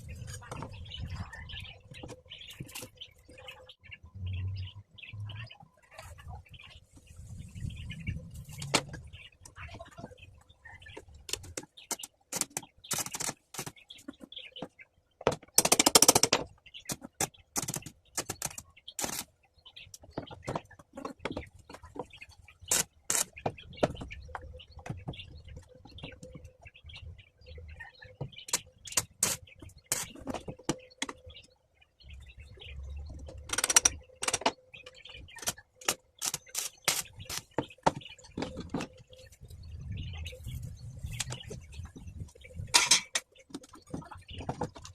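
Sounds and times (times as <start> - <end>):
metal clicks and knocks: 15.2 - 16.5, 33.2 - 34.6.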